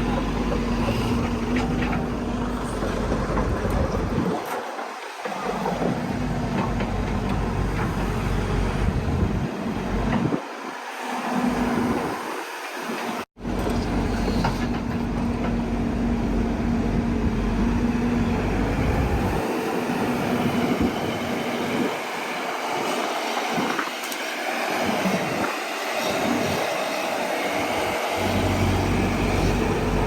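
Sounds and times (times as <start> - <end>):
diesel engine rumbling: 0.0 - 4.4, 28.2 - 30.0.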